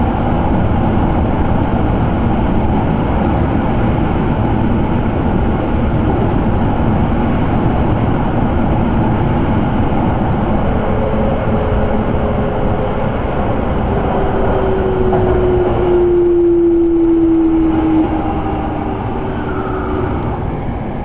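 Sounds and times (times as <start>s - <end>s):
train wheels rumbling on rails: 0.0s - 21.0s
train motor whine: 4.4s - 21.0s.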